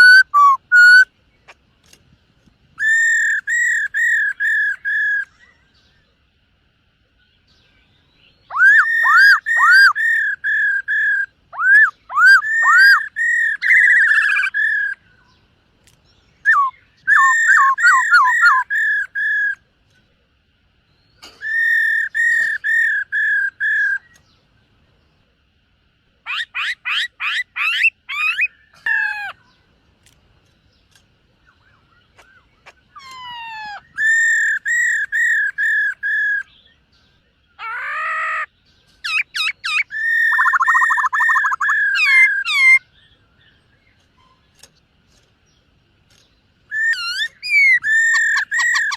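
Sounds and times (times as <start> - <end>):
laughingthrush whistled song: 0.0 - 1.1, 2.8 - 5.6, 8.4 - 15.3, 16.4 - 19.6, 21.2 - 24.2, 31.7 - 36.6, 37.6 - 42.9, 46.7 - 48.9.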